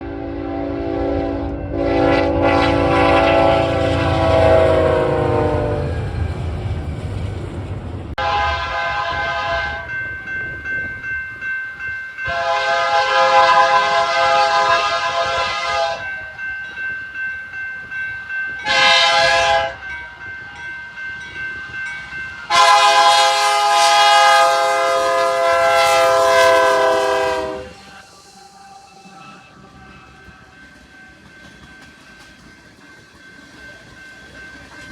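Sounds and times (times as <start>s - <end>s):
locomotive air horn blasts: 0.0s - 6.0s, 8.2s - 9.9s, 12.3s - 16.1s, 18.6s - 19.8s, 22.5s - 29.4s
train rumbling: 0.0s - 34.9s
train cars clattering on rails: 25.8s - 34.9s.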